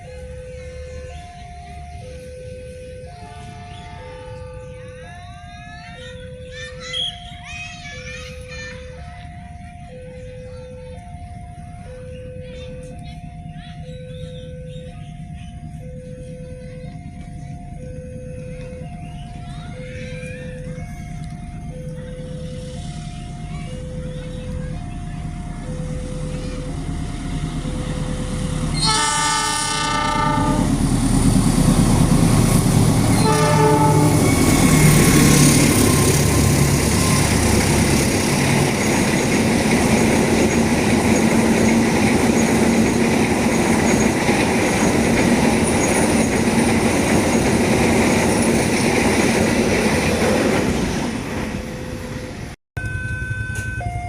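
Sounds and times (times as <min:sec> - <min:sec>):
train rumbling past: 0:00.0 - 0:54.0
wheels clattering on rail joints: 0:12.5 - 0:53.9
train horn blasts: 0:28.7 - 0:30.8, 0:33.1 - 0:35.1.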